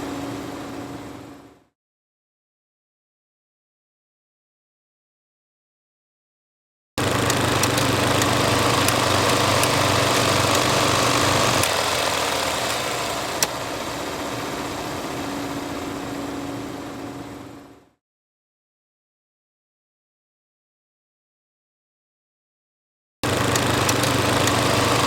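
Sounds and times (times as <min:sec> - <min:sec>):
low hum: 0:00.0 - 0:01.7
film projector whirring: 0:07.0 - 0:17.0, 0:23.2 - 0:25.0
sharp click: 0:07.2 - 0:11.8, 0:23.4 - 0:24.8.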